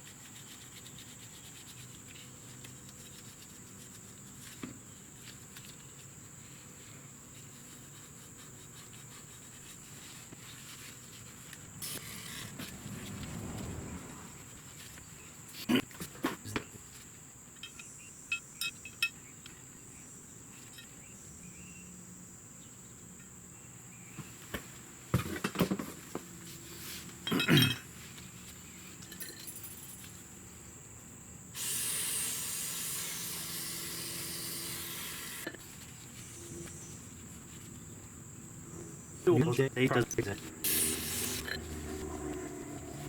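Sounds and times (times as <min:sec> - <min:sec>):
small metal parts clinking: 0:29.0 - 0:30.2
aerosol spray hissing: 0:31.6 - 0:35.5, 0:40.6 - 0:41.5.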